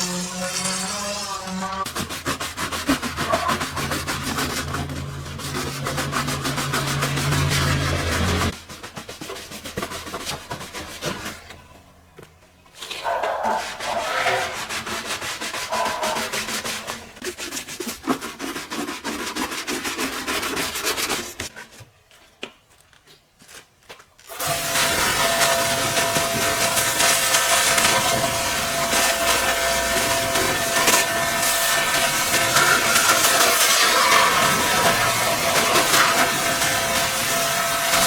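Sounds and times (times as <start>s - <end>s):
scrubbing against a surface: 1.8s - 11.5s, 12.8s - 21.5s
machine humming: 2.8s - 8.5s.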